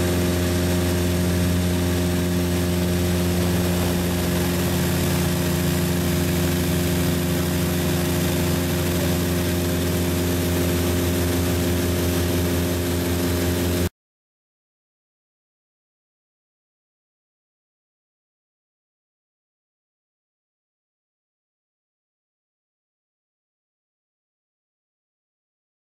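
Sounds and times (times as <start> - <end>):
airplane engine and propeller drone: 0.0 - 13.9.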